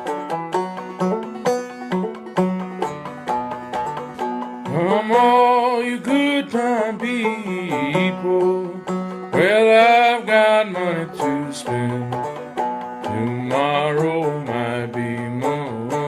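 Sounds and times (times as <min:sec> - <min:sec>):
country song with plucked strings: 0:00.0 - 0:16.0
person singing: 0:04.6 - 0:12.4, 0:13.0 - 0:16.0.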